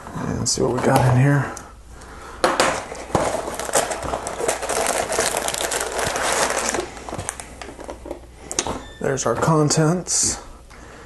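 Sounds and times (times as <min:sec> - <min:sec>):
cardboard box crinkling and rustling: 0:02.9 - 0:07.9.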